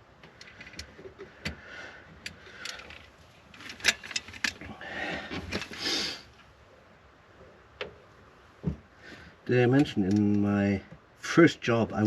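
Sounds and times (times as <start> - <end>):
light clicks and knocks: 9.7 - 11.0.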